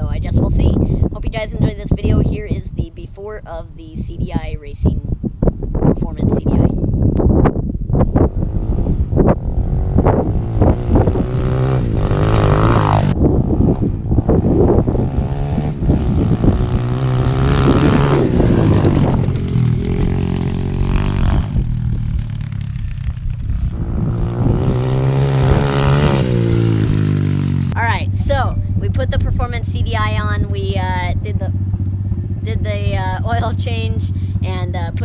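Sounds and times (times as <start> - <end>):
dirt bike engine revving: 8.0 - 35.0.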